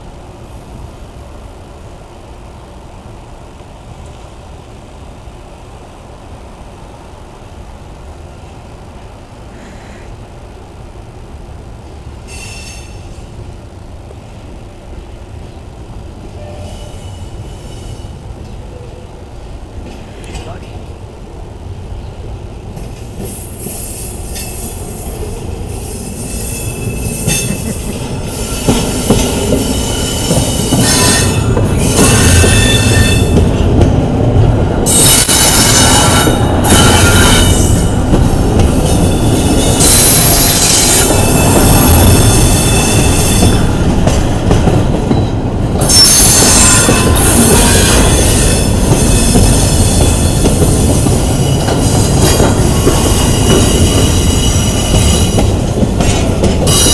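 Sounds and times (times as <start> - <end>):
train wheels rumbling on rails: 0.0 - 56.9
high-pitched flange squeal: 29.7 - 33.4.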